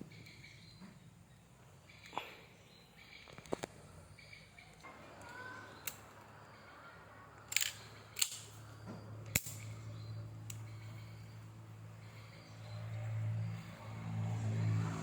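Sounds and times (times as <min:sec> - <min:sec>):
bb gun snapping clicks: 0:07.5 - 0:08.6, 0:09.3 - 0:09.7.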